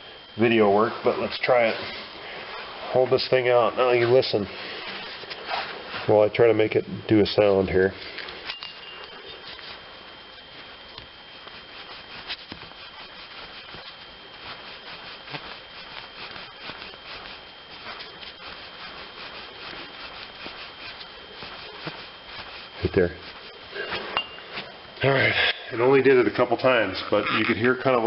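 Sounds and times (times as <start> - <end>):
bearing dry flutter: 8.1 - 24.6.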